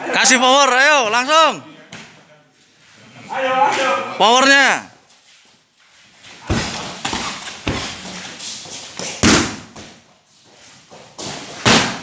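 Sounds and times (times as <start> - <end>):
kicks and strikes thudding: 9.2 - 9.8, 11.6 - 12.0.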